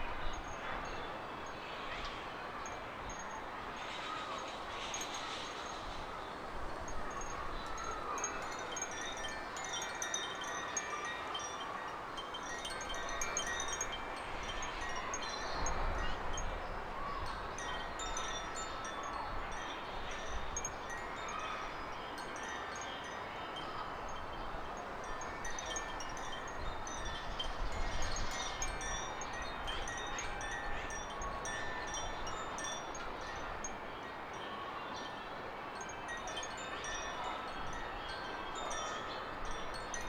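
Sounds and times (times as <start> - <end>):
wind rumbling on microphone: 12.1 - 22.3, 23.7 - 34.4.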